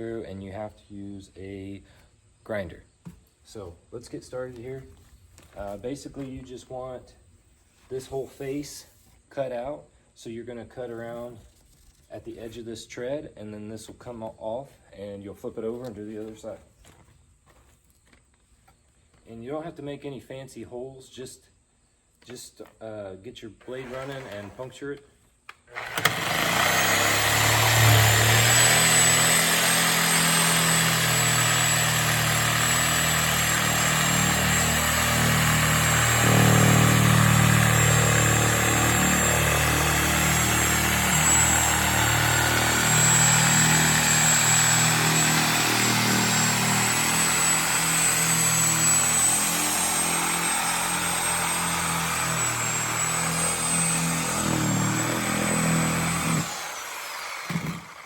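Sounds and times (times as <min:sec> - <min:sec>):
reciprocating saw cutting rubber tire: 0:23.6 - 0:24.8, 0:25.7 - 0:58.0.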